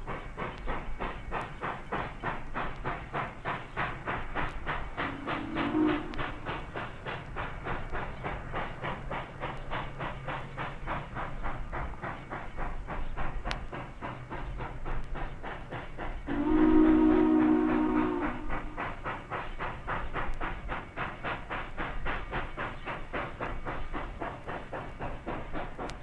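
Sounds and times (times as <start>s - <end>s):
steam locomotive exhaust chuffing: 0.0s - 26.0s
steam whistle chord: 5.0s - 6.5s, 16.3s - 18.8s.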